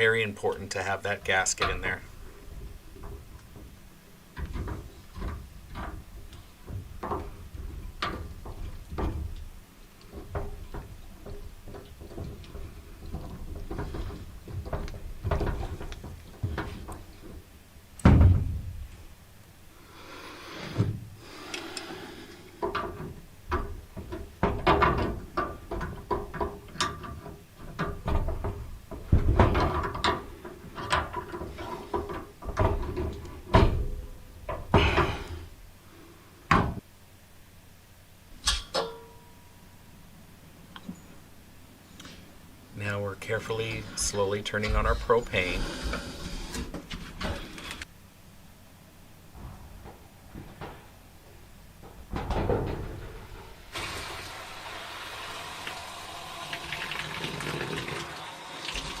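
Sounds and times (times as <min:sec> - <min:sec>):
loud thump: 0:18.0 - 0:18.9.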